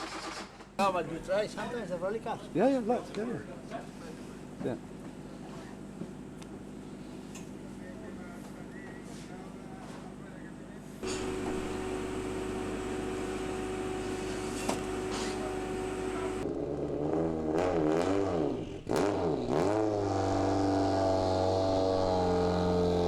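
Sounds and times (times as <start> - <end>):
rally car engine revving: 11.0 - 23.0.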